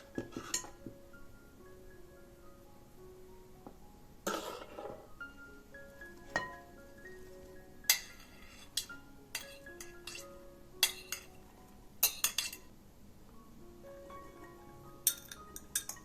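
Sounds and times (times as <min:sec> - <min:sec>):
utensils clinking against dishes: 0:00.0 - 0:00.9, 0:07.9 - 0:11.4, 0:12.0 - 0:12.7, 0:15.0 - 0:16.0
soft music with plucked melody: 0:00.0 - 0:12.7, 0:13.3 - 0:16.0.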